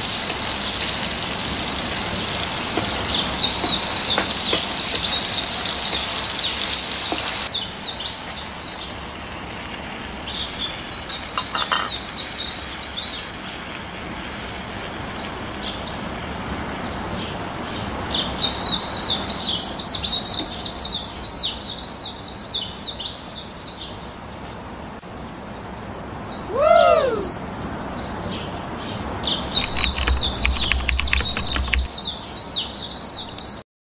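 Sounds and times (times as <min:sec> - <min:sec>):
steady hiss: 0:00.0 - 0:07.8, 0:17.8 - 0:26.6, 0:27.2 - 0:32.0
small birds chirping: 0:00.0 - 0:09.0, 0:15.1 - 0:24.7, 0:25.3 - 0:33.6
rising and falling bird call: 0:26.4 - 0:27.5, 0:29.4 - 0:31.9
clicks and low thumps: 0:29.6 - 0:31.9.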